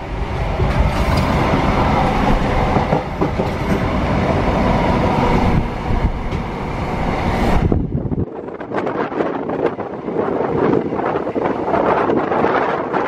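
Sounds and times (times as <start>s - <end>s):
rail joint clicks: 0.0s - 7.8s
train wheels rumbling on rails: 0.0s - 13.0s.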